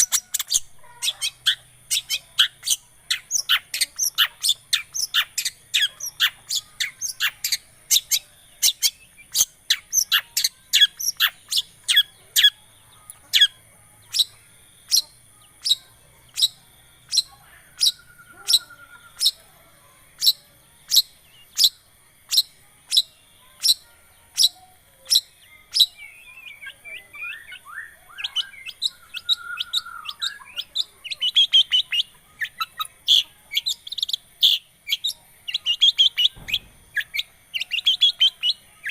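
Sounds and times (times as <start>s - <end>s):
bird singing sharp chip notes: 20.2s - 38.9s.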